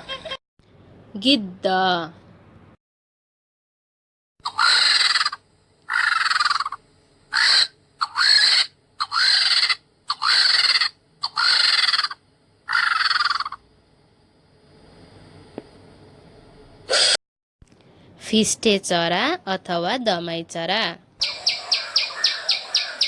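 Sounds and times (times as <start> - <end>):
vulture screeching: 4.4 - 13.6, 21.2 - 23.0.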